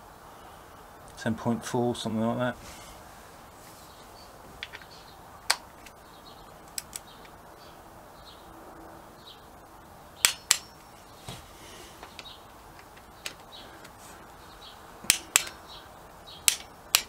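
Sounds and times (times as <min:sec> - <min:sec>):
hand tools tightening bolts: 0:10.2 - 0:10.9, 0:12.0 - 0:14.0, 0:15.1 - 0:15.6, 0:16.4 - 0:17.0
torque wrench clicking: 0:15.1 - 0:15.6, 0:16.4 - 0:17.0.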